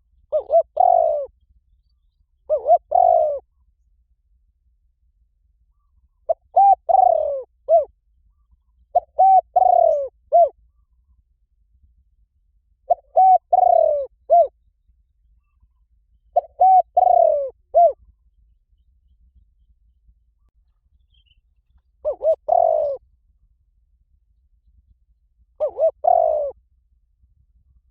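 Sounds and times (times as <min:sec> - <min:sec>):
dove cooing: 0:00.2 - 0:01.4, 0:02.5 - 0:03.5, 0:05.7 - 0:10.9, 0:12.9 - 0:14.6, 0:16.3 - 0:18.1, 0:22.0 - 0:23.0, 0:25.6 - 0:26.6.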